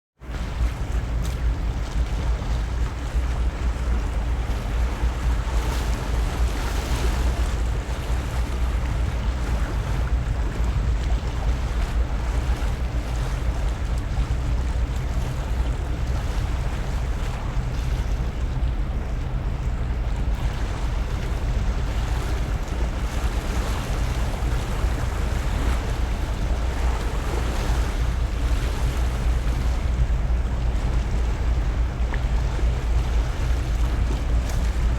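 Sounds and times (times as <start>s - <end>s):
ship engine rumble: 0.2s - 34.9s
wind buffeting microphone: 0.2s - 34.9s.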